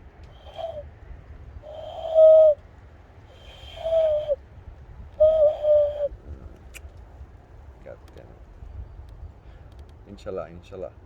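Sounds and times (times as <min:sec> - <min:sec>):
hooting bird call through hands: 0:00.3 - 0:00.9, 0:01.6 - 0:02.6, 0:03.3 - 0:04.4, 0:05.2 - 0:06.2.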